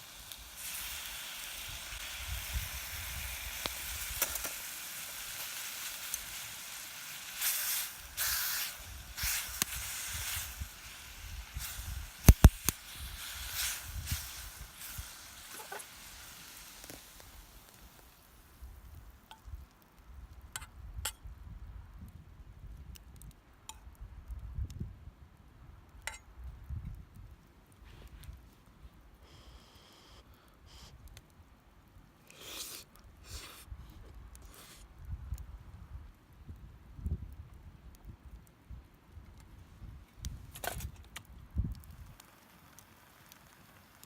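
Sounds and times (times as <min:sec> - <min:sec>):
fire crackles: 0:00.0 - 0:44.0
food sizzling over campfire: 0:00.0 - 0:44.0.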